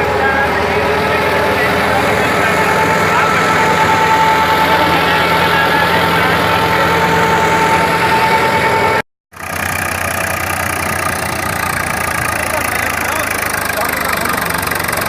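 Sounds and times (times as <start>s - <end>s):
high whine: 0.0s - 9.0s
diesel tractor engine running: 0.0s - 15.0s.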